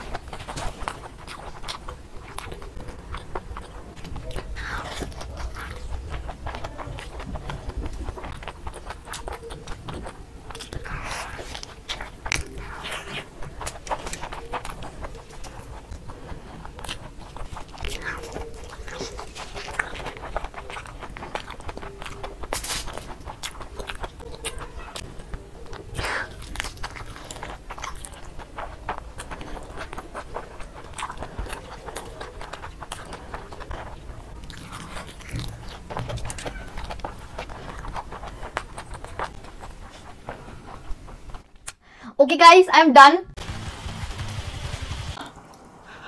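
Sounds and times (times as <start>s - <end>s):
person chewing with mouth clicks: 0.0s - 41.9s.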